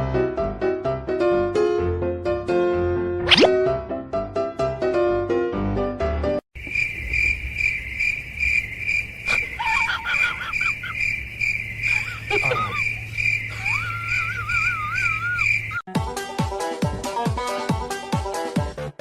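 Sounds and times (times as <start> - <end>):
cricket chirping: 6.6 - 15.8.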